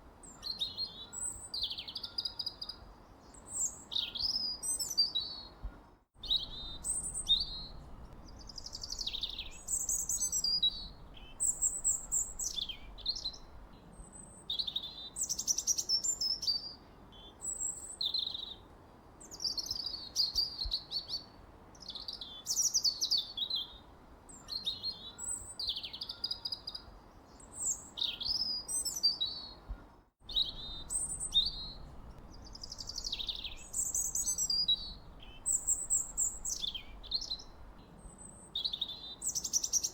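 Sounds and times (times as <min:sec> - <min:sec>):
faint steady hiss: 0:00.0 - 0:39.9
birds chirping and singing: 0:06.2 - 0:13.6, 0:30.3 - 0:37.7.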